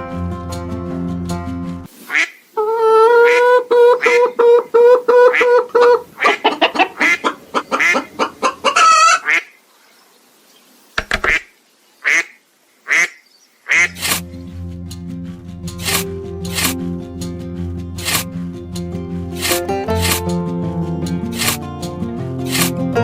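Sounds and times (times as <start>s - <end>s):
duck-like bird calls: 3.1s - 9.6s, 11.0s - 14.2s.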